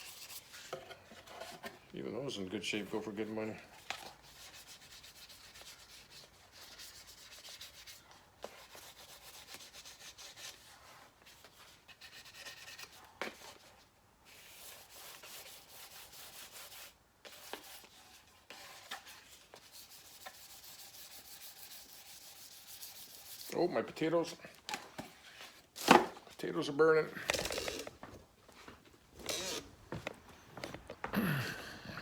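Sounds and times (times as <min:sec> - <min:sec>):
sandpaper rubbing on paintwork: 0:04.2 - 0:11.4, 0:14.3 - 0:23.5.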